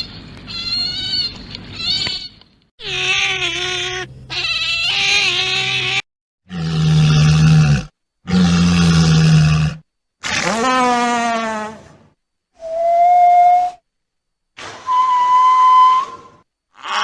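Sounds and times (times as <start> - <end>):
pitched animal call: 0.5 - 11.9, 16.7 - 17.0.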